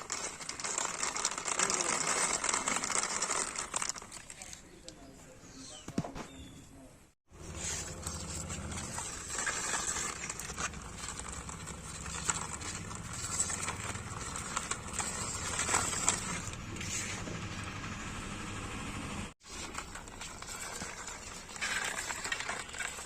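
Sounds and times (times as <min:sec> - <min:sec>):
toy car motor hum: 0:00.0 - 0:04.4, 0:07.4 - 0:17.8
quick small clicks and rattles: 0:00.0 - 0:05.0.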